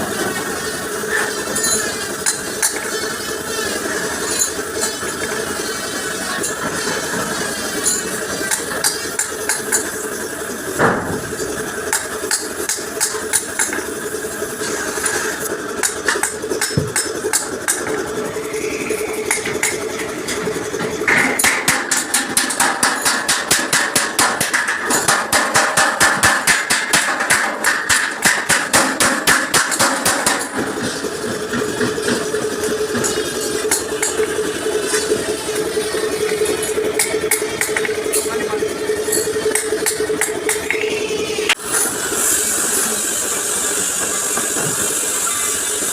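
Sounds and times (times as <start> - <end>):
engine running: 0.0 - 45.9
hammer striking steel bumper: 21.0 - 34.3.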